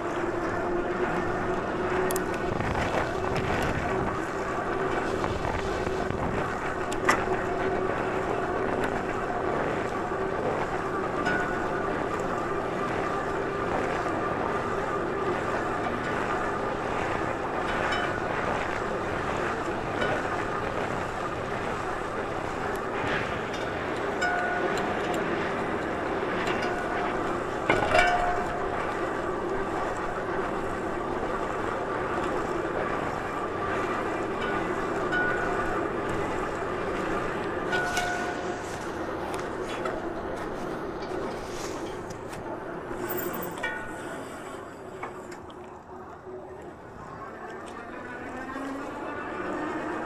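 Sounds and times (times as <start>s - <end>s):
wind on microphone: 0.0s - 24.2s
riding noise: 0.0s - 45.8s.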